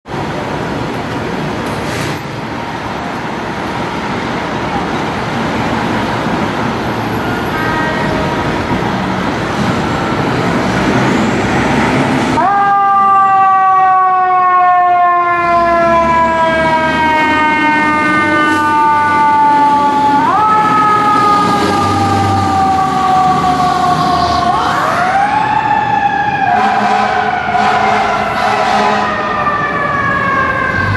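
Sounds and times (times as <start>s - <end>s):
siren rising and falling: 11.3s - 30.9s.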